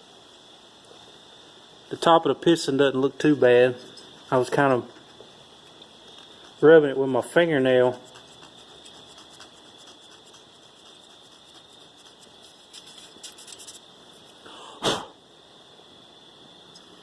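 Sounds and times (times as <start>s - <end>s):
hands rubbing engine parts: 3.7s - 14.4s
light scratchy ticks: 3.8s - 6.8s, 7.5s - 13.8s.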